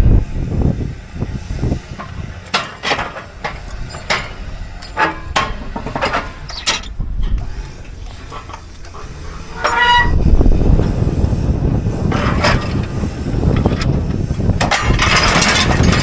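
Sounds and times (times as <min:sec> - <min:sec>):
low rumble: 0:00.0 - 0:16.0
sharp metal clanks: 0:02.0 - 0:07.0.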